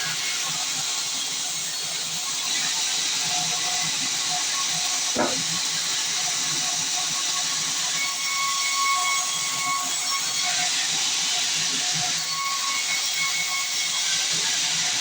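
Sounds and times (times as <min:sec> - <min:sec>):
dull thump: 0:05.2 - 0:05.5
saw blade cutting log: 0:05.2 - 0:05.6.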